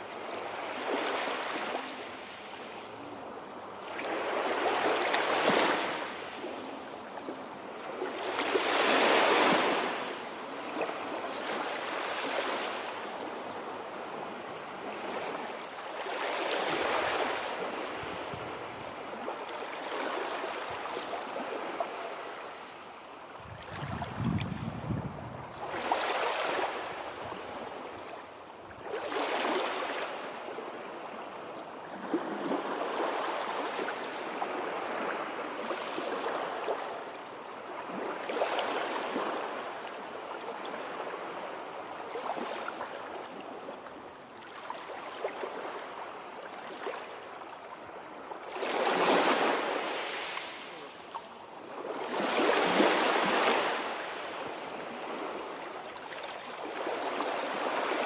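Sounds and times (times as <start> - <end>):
sea waves washing on shore: 0.0 - 58.0
waves breaking: 3.8 - 22.5, 23.4 - 28.1.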